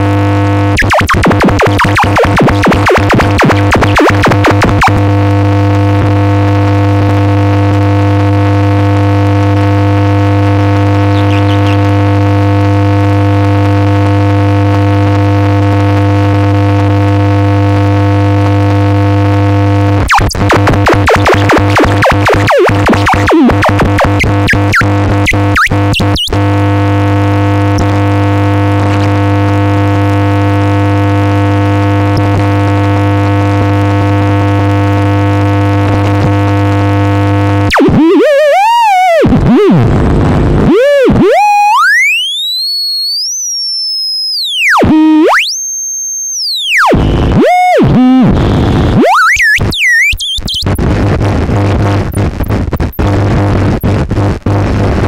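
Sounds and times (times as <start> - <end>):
electronic drone: 0.0 - 7.5, 9.3 - 13.4, 19.3 - 30.2, 36.1 - 45.7, 46.4 - 50.8
glitchy stuttering cuts: 0.7 - 5.2, 11.0 - 12.4, 20.1 - 26.5, 37.7 - 43.2, 46.6 - 50.8, 52.1 - 53.9.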